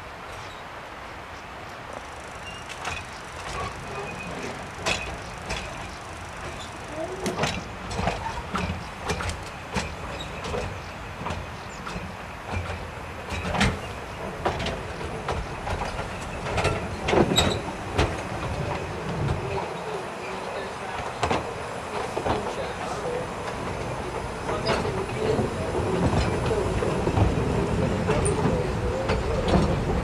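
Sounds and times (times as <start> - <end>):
train low rumble: 0.0 - 30.0
wheels clanking over rail joints: 1.9 - 30.0
wheel squeal: 17.3 - 17.7.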